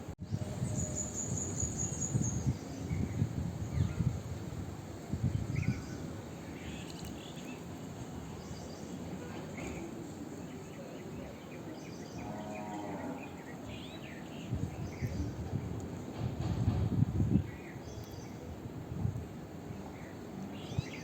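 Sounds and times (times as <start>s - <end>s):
birds chirping: 5.3s - 18.6s.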